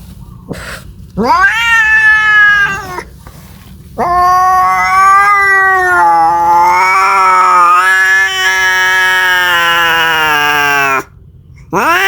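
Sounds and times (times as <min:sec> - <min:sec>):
cat yowling: 0:01.2 - 0:03.1, 0:04.0 - 0:11.1, 0:11.7 - 0:12.0.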